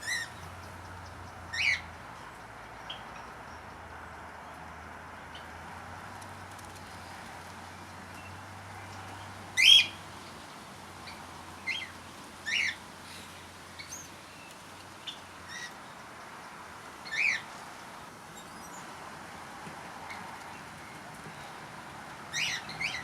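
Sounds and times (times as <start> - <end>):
birds chirping: 0.0 - 1.9, 8.1 - 10.0, 11.0 - 16.0, 17.0 - 17.5, 22.3 - 23.0.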